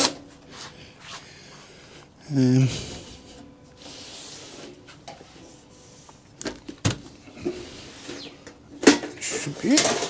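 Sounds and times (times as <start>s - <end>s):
soft rubbing hiss: 0.3s - 6.4s.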